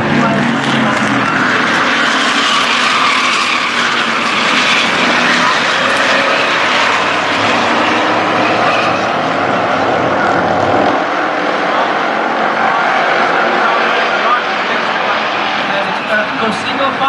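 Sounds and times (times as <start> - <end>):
racing truck engines droning: 0.0 - 17.0.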